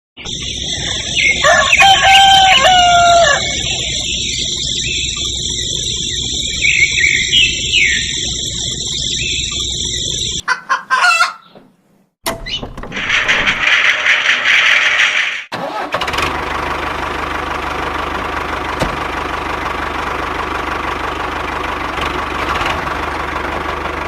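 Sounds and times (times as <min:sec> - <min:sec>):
rooster crowing: 0:00.7 - 0:04.2, 0:10.4 - 0:11.4.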